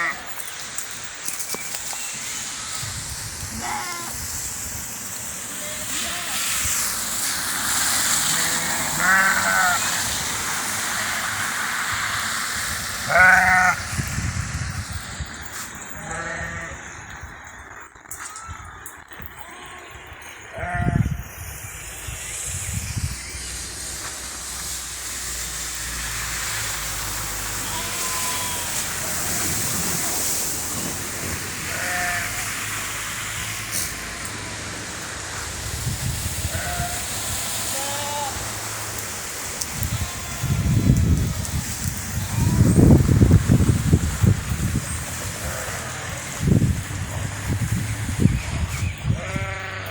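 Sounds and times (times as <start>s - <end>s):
rain falling: 0.0s - 13.1s, 23.5s - 48.1s
livestock bleating: 3.5s - 4.2s, 8.3s - 9.9s, 13.0s - 13.9s, 16.0s - 16.8s, 27.6s - 28.8s, 31.7s - 32.5s, 37.7s - 38.4s, 49.1s - 49.9s.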